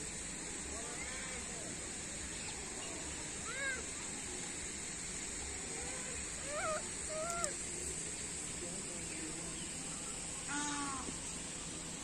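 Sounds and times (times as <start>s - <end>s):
background hiss: 0.0s - 12.0s
bird calling: 6.4s - 7.6s, 10.5s - 11.1s.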